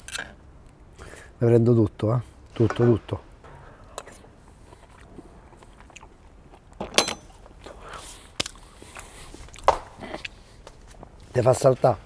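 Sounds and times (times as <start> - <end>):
person chewing: 4.0 - 10.6.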